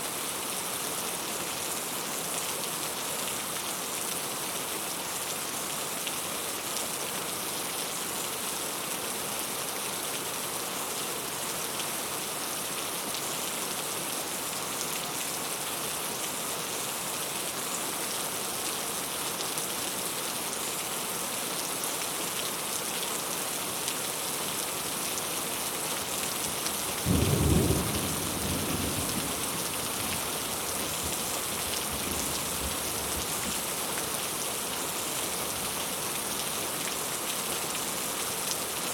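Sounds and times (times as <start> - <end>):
steady rain falling: 0.0 - 38.9
thunder clap and rumble: 27.1 - 30.1.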